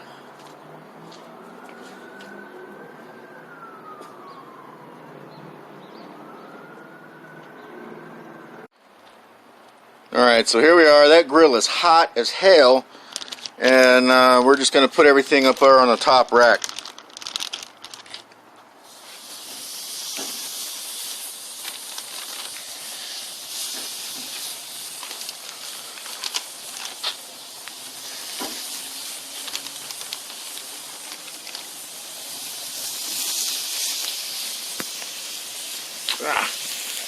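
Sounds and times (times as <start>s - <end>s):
chicken wings sizzling on grill: 18.8s - 37.0s.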